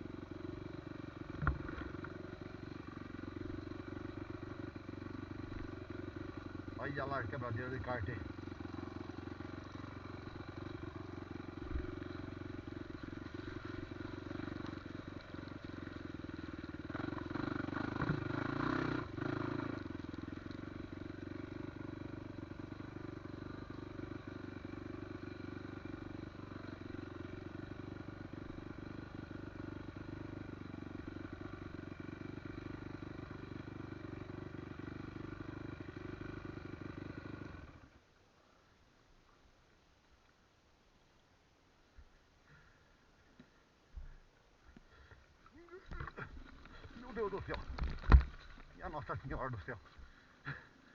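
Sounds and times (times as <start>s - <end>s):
motorcycle engine running: 0.0s - 38.0s, 42.5s - 50.9s.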